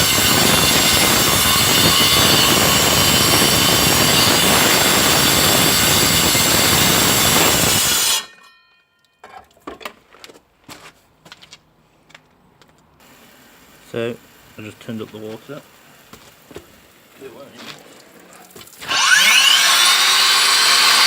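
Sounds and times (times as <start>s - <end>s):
angle grinder cutting concrete: 0.0s - 8.3s, 18.8s - 21.0s
grinder disc winding down: 18.8s - 21.0s.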